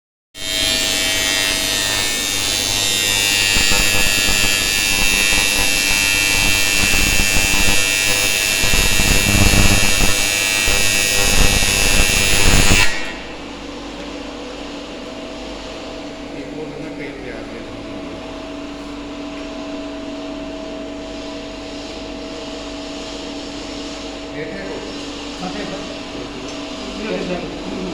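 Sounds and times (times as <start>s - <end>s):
welding arc buzz and hiss: 0.4s - 14.8s
welding machine hum: 0.4s - 14.8s.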